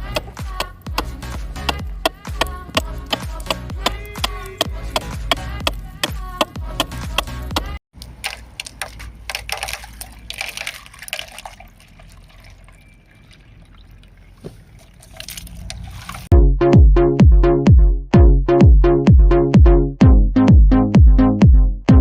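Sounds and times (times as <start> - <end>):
electronic music with drum beat: 0.0 - 7.8, 16.3 - 22.0
small clicks and splashes: 8.0 - 16.3
liquid trickling and pouring: 8.2 - 16.3.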